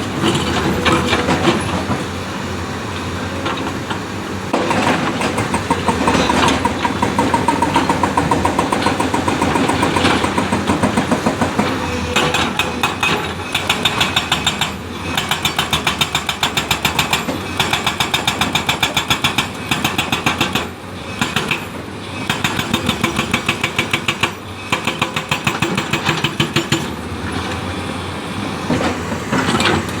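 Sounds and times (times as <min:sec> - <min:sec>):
excavator engine running: 0:00.0 - 0:17.6.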